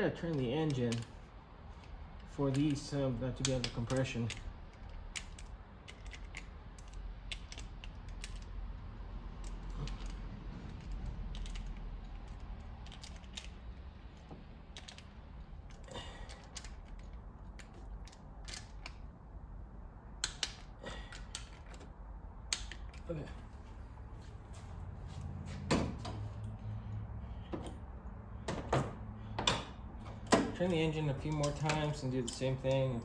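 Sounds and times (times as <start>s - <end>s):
low steady hum: 0.0s - 33.0s
metallic tool clicks: 20.2s - 21.8s, 22.5s - 23.1s.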